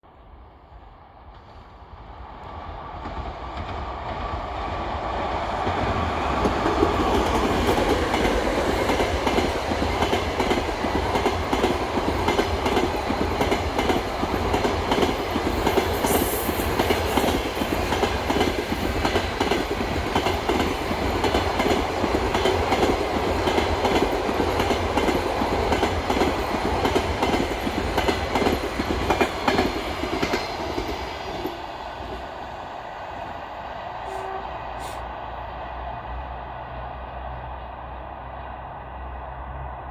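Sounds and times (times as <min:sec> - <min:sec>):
train running rush: 0:00.1 - 0:39.9
train wheels clattering over rail joints: 0:05.7 - 0:32.4.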